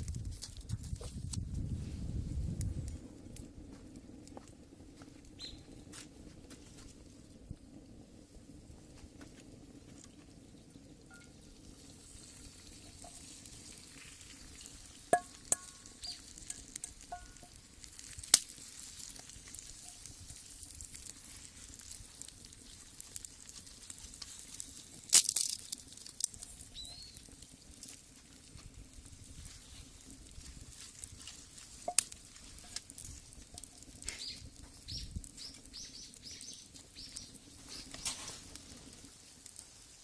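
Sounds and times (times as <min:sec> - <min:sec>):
food sizzling in a skillet: 0:11.1 - 0:40.0.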